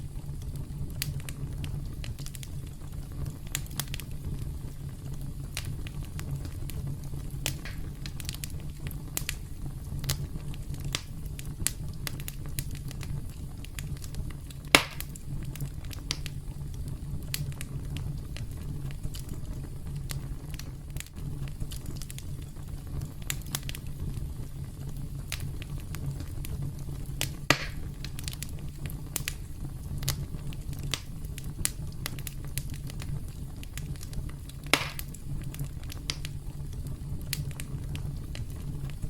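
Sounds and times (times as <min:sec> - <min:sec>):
campfire crackling: 0:00.0 - 0:39.0
wood popping and snapping: 0:14.7 - 0:15.1, 0:27.2 - 0:28.5, 0:34.6 - 0:35.2.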